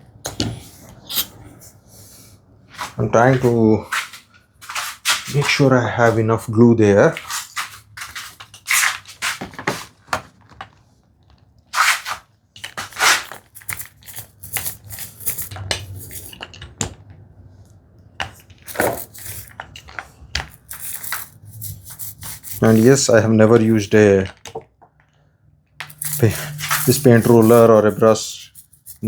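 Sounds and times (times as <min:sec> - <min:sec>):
plastic sheet crinkling: 0:20.5 - 0:24.0, 0:25.9 - 0:29.0.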